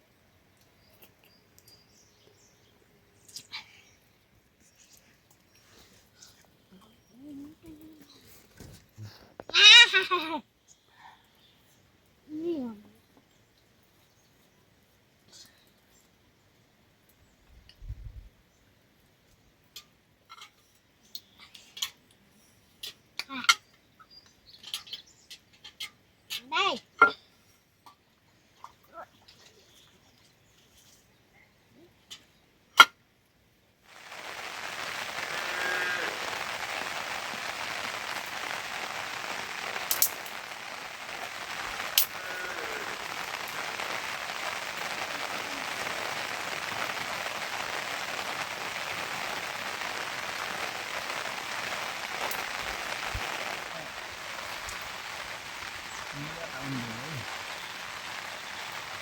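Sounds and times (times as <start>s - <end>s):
steady rain: 0.0s - 14.5s, 33.8s - 59.0s.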